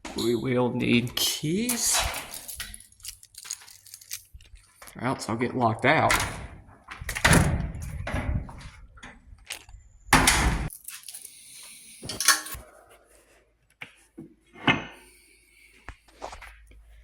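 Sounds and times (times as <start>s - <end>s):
keys and door clattering: 1.2s - 4.5s
small clinks and knocks: 2.2s - 5.0s.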